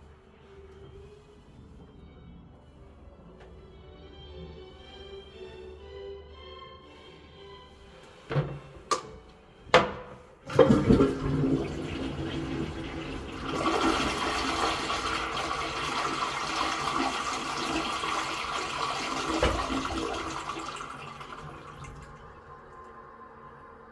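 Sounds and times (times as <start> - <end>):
toilet flushing: 6.9 - 23.9.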